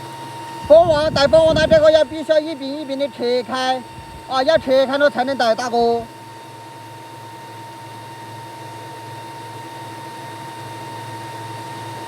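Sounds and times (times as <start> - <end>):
steady low hum: 0.3 - 6.7.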